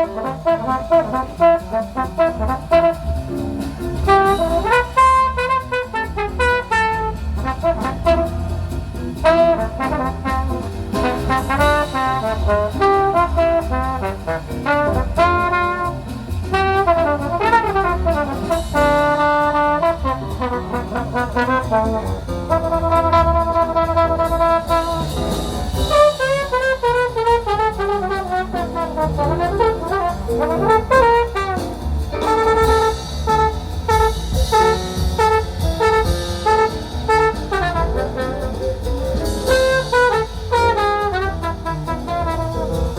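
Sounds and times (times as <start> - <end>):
jazz brass melody: 0.0 - 42.9
steady low bass: 0.0 - 42.9.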